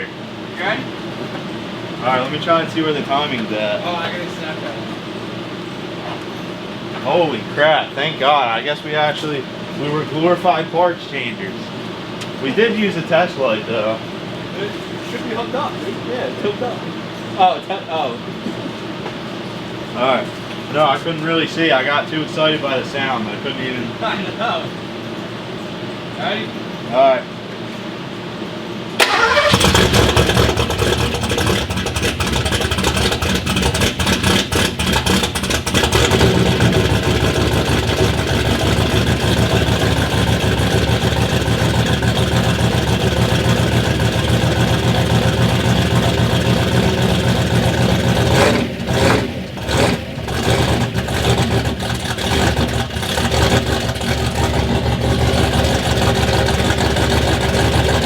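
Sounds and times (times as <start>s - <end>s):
truck engine running: 29.0s - 58.0s.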